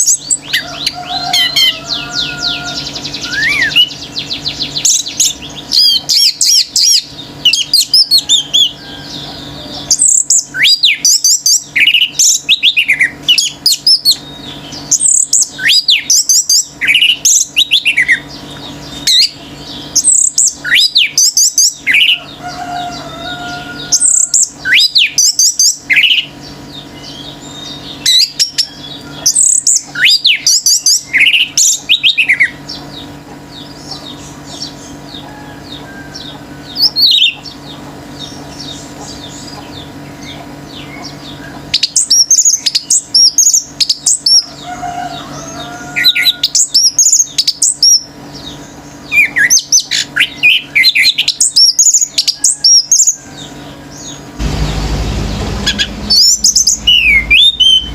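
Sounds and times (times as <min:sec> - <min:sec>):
other birds calling: 0:00.0 - 0:57.9
thrush singing: 0:53.4 - 0:57.9.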